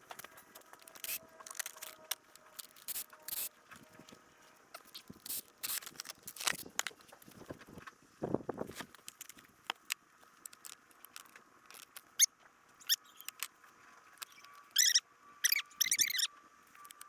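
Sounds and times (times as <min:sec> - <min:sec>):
high-pitched squeaks: 0:00.8 - 0:04.1, 0:11.7 - 0:13.5, 0:14.2 - 0:17.0
parts clicking and tapping: 0:08.8 - 0:17.0.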